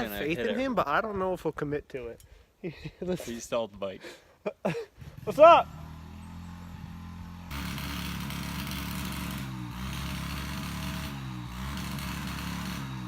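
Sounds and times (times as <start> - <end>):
pit bike engine idling: 5.1 - 13.0.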